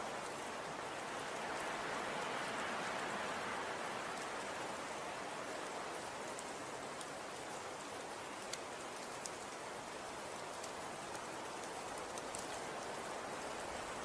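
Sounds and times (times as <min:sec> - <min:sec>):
soft hiss of falling snow: 0:00.0 - 0:14.0
faint ticks of snowflakes landing: 0:05.6 - 0:14.0.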